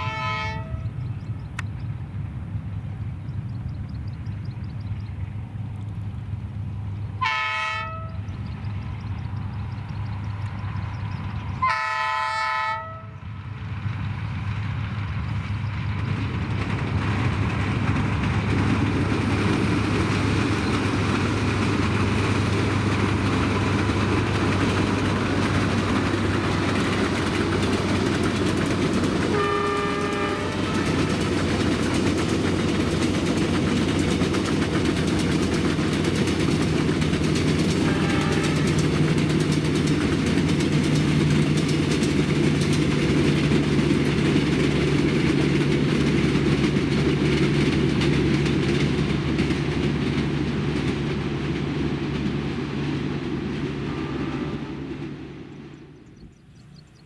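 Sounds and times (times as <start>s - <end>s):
train horn blast: 0.0s - 1.0s, 7.2s - 8.3s, 11.6s - 13.2s, 29.3s - 31.3s, 37.7s - 39.0s, 53.8s - 55.0s
train rumble: 0.0s - 57.0s
wheels on rail: 0.0s - 57.0s
low engine hum: 0.7s - 7.2s, 8.1s - 11.6s, 13.1s - 57.0s.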